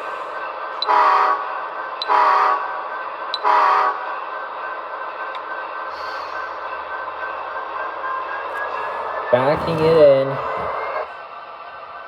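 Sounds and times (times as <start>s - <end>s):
model train horn blasts: 0.8s - 1.4s, 2.0s - 2.7s, 3.4s - 4.0s
steady hum: 5.9s - 11.2s.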